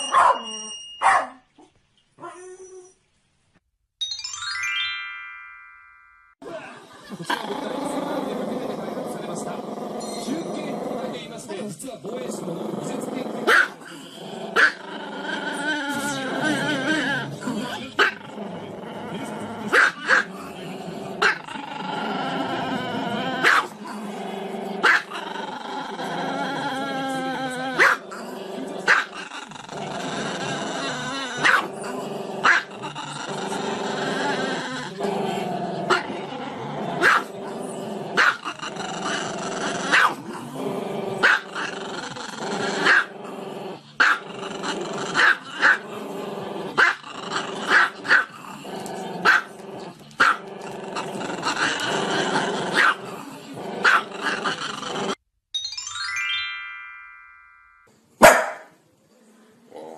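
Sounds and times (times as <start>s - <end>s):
small dog barking: 0.1s - 1.4s, 13.5s - 13.8s, 14.6s - 14.8s, 19.7s - 20.3s, 23.4s - 23.7s, 24.8s - 25.2s, 27.8s - 28.0s, 31.4s - 31.7s, 32.4s - 32.7s, 37.0s - 37.3s, 38.2s - 38.4s, 39.9s - 40.2s, 41.2s - 41.4s, 42.8s - 43.1s, 44.0s - 44.2s, 45.2s - 45.8s, 46.8s - 47.0s, 47.7s - 48.3s, 49.2s - 49.5s, 50.2s - 50.4s, 52.8s - 53.0s, 53.8s - 54.1s, 58.2s - 58.7s.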